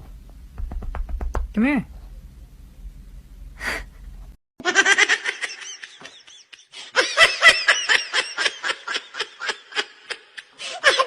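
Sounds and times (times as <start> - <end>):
person laughing hard: 4.6 - 11.0.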